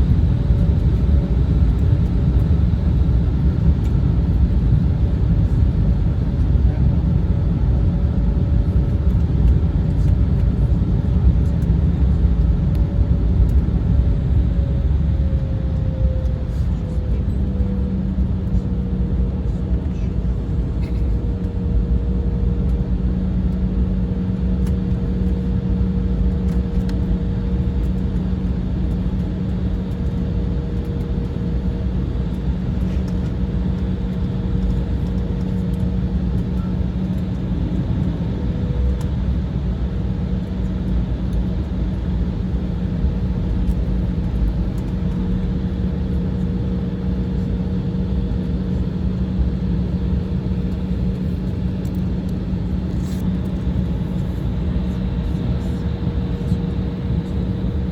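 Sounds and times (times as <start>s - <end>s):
low steady hum: 0.0s - 18.6s, 27.8s - 57.9s
jet engine cabin roar: 0.0s - 57.9s.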